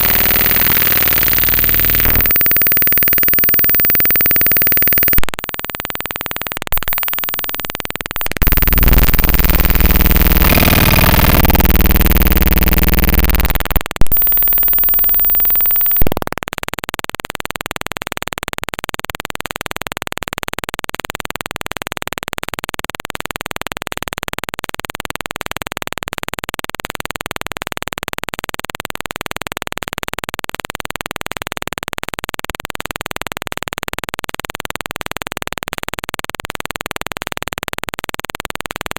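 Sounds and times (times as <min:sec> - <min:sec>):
steady digital hiss: 0:00.0 - 0:16.1
buzzing glitch tones: 0:00.0 - 0:16.4.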